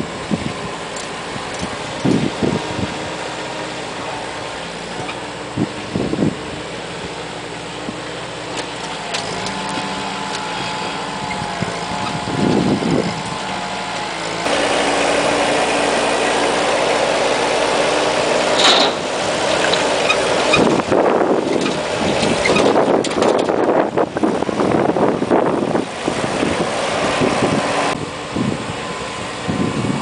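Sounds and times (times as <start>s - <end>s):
vehicle engine running: 0.0s - 30.0s
loud rushing noise: 10.2s - 22.0s.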